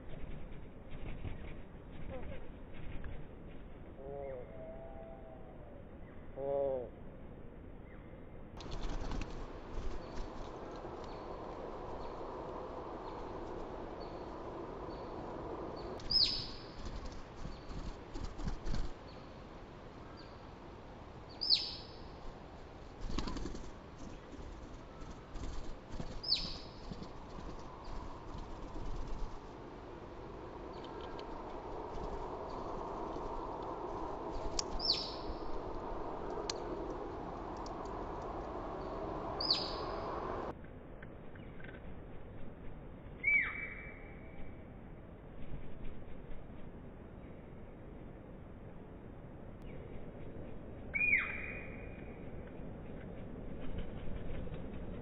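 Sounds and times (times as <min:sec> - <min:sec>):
background rumble and hiss: 0:00.0 - 0:55.0
downward-sweeping bird calls: 0:12.9 - 0:17.9, 0:21.3 - 0:22.2, 0:26.2 - 0:29.1, 0:34.1 - 0:35.7, 0:38.8 - 0:40.5, 0:43.2 - 0:44.4, 0:50.9 - 0:52.2
songbird whistled call: 0:43.2 - 0:44.2, 0:50.9 - 0:51.9.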